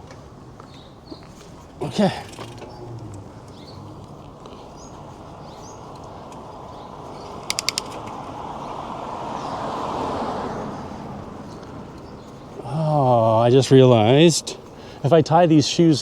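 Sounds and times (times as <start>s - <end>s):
street noise: 0.0s - 16.0s
sharp high clicks: 7.3s - 8.2s.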